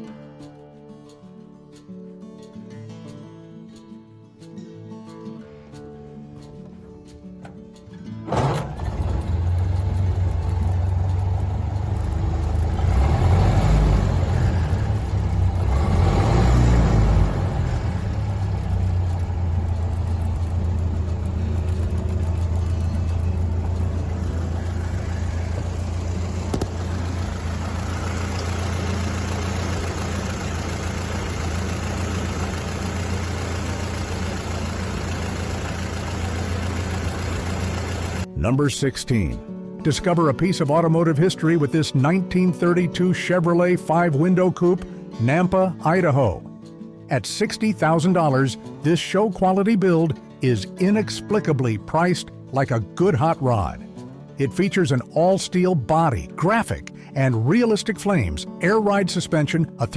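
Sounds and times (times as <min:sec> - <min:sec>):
car engine idling and revving: 0:06.3 - 0:38.3.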